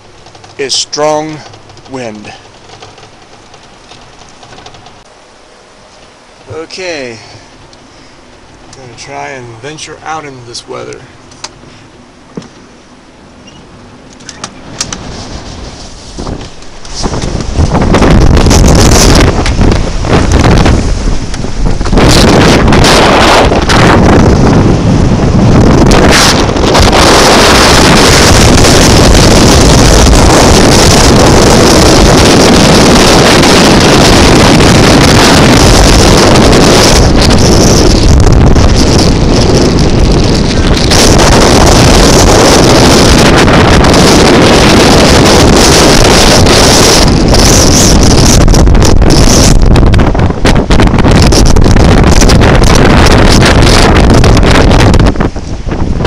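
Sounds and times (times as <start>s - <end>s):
blizzard wind buffeting microphone: 0.0s - 56.0s.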